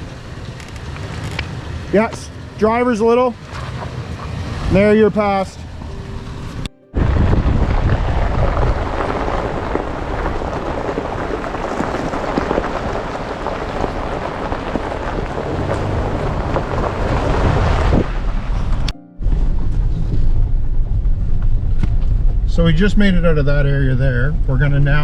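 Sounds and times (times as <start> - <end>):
rain patter: 0.0 - 18.9
vehicle engine low rumble: 0.0 - 25.0.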